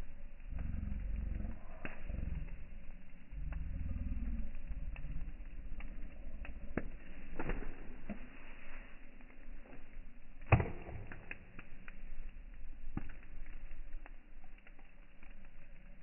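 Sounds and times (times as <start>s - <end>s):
bonfire crackling and popping: 0.0s - 16.0s
low rumble: 0.0s - 16.0s.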